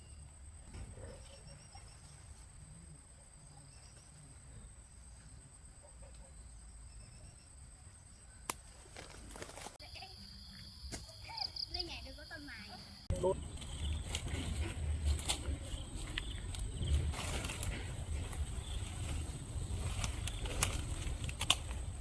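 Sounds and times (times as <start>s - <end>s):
rustling noise: 8.7s - 9.8s, 13.3s - 22.0s.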